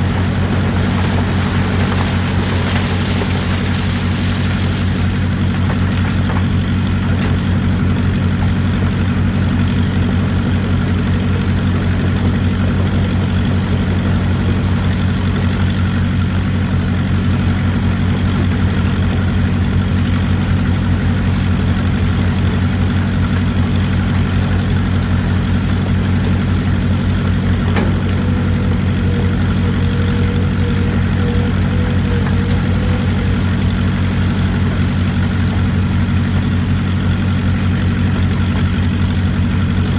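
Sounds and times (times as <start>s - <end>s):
excavator engine drone: 0.0s - 39.9s
faint high whine: 27.7s - 35.0s.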